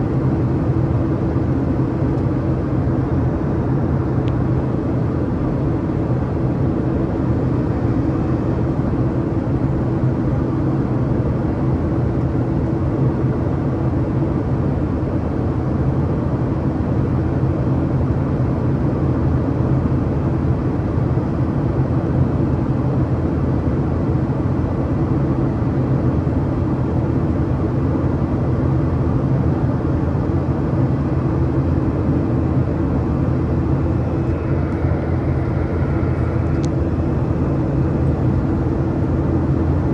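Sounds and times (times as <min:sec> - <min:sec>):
constant low hum: 0:00.0 - 0:39.9
jet engines droning: 0:20.3 - 0:39.9
rushing airflow: 0:31.6 - 0:39.9.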